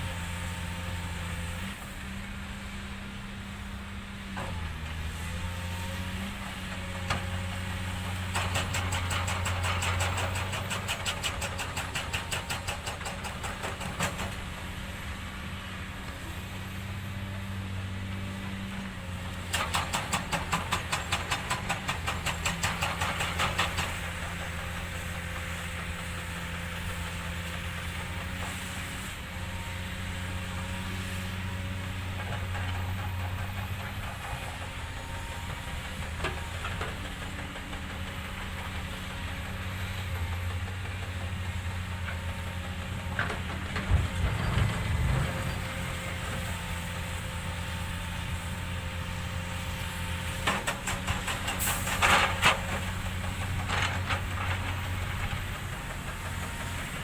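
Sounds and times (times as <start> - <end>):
engine humming: 12.9 - 57.0.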